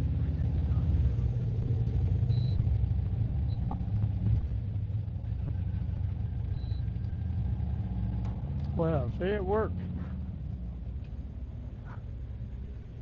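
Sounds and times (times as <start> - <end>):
motorcycle engine running: 0.0 - 13.0
high electronic beeps: 2.3 - 2.7, 6.5 - 6.9.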